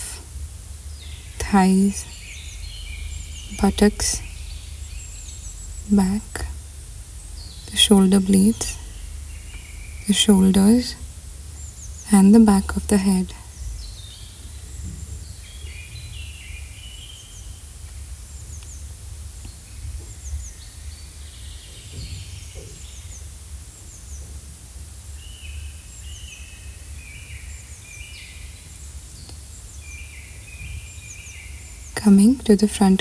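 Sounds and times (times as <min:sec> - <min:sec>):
steady low rumble: 0:00.0 - 0:14.1
birds chirping: 0:00.8 - 0:24.4, 0:25.1 - 0:33.0.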